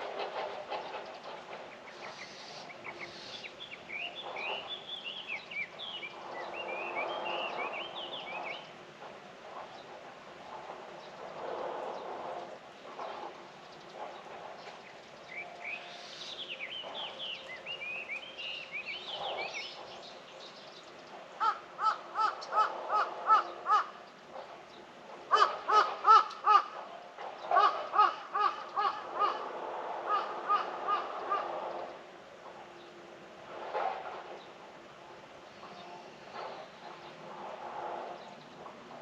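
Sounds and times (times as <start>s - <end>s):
crow cawing: 21.4s - 24.0s, 25.3s - 26.8s, 27.6s - 29.5s, 30.1s - 31.5s.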